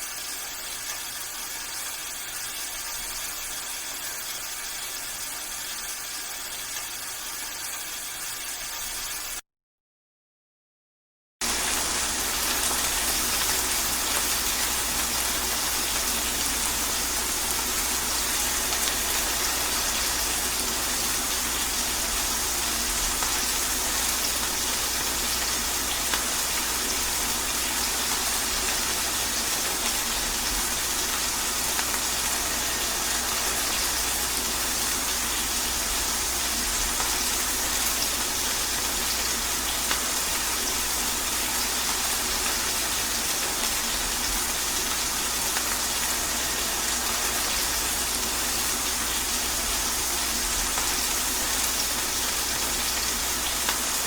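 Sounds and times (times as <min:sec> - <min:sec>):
steady rain hiss: 0:11.4 - 0:54.0.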